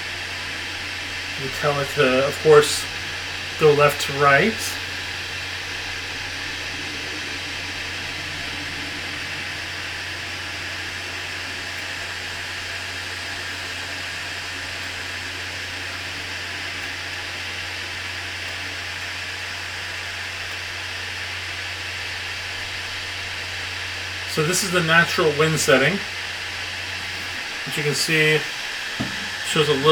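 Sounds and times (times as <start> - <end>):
low fan hum: 0.0 - 19.0, 19.6 - 29.9
table fan air rushing: 24.2 - 29.9.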